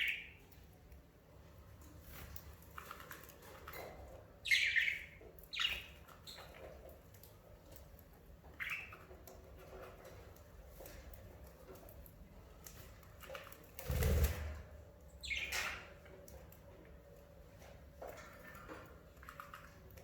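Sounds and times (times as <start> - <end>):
faint chirping: 4.4 - 6.8, 15.2 - 15.9.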